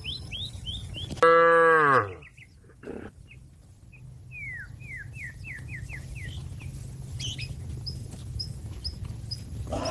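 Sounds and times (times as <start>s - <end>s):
small bird chirping: 0.0s - 1.2s, 2.2s - 9.9s.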